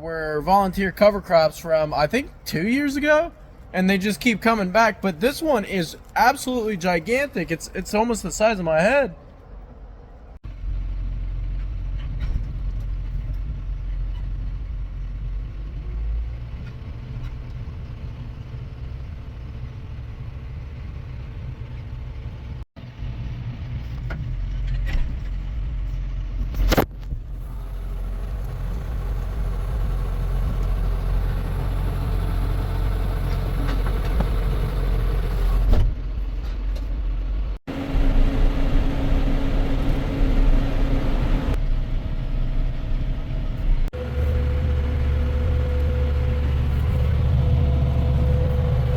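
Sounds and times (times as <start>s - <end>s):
diesel engine droning: 0.0s - 48.9s.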